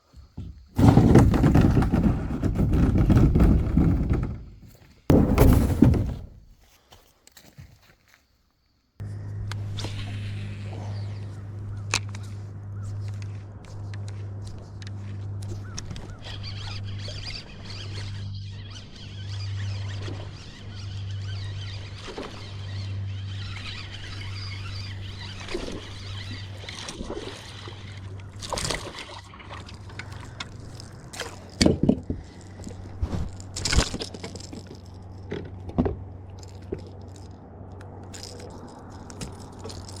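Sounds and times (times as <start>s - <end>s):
steady low hum: 9.0s - 26.8s
water splashing and sloshing: 24.9s - 40.0s.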